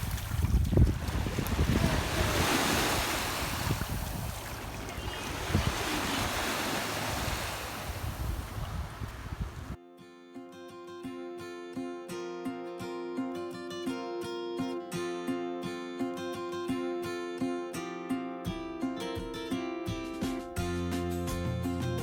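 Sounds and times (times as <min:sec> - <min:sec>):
waves washing onto shore: 0:00.0 - 0:09.8
wind buffeting microphone: 0:00.0 - 0:09.8.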